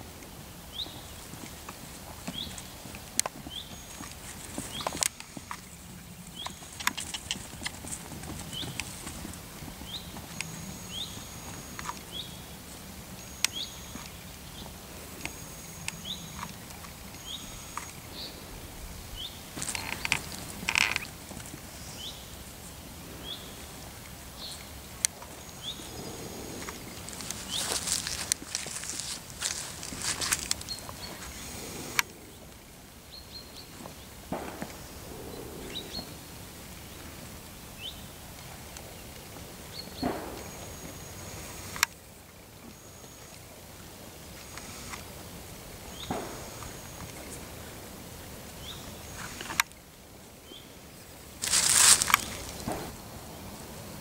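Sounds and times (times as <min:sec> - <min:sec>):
rustling: 0:25.8 - 0:32.6, 0:51.4 - 0:53.0.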